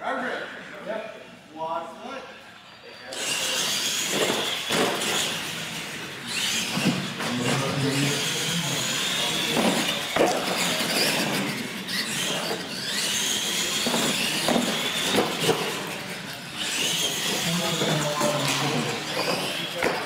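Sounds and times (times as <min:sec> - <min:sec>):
toy truck electric motors whining: 0:02.6 - 0:20.0.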